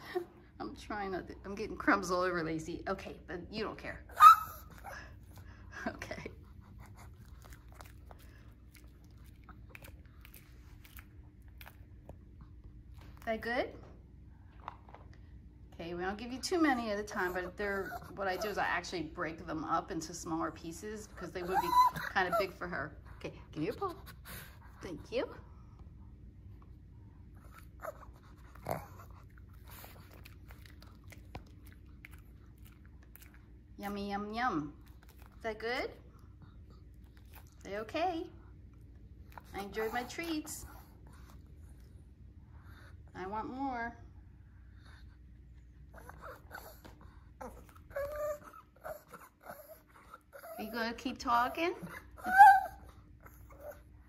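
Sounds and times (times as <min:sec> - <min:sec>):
dog whining: 0:04.1 - 0:05.1, 0:17.2 - 0:18.5, 0:21.4 - 0:22.6, 0:45.9 - 0:50.8, 0:51.8 - 0:53.9
dog crunching treat: 0:07.0 - 0:12.1, 0:28.5 - 0:33.6.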